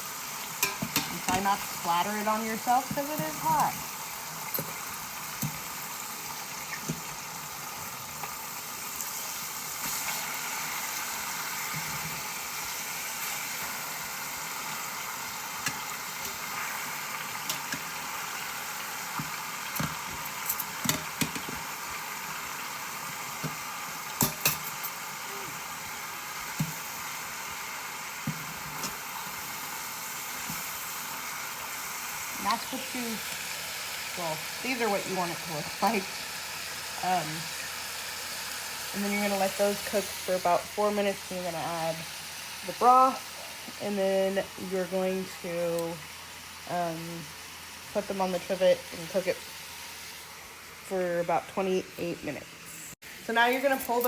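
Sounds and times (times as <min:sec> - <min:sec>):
chicken sizzling in hot oil: 0:00.0 - 0:54.0
metal tongs knocking pot: 0:00.6 - 0:03.8.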